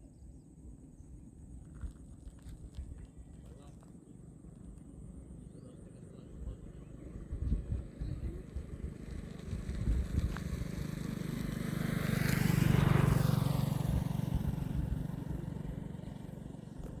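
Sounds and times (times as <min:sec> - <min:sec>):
road vehicle passing: 0:04.3 - 0:17.0.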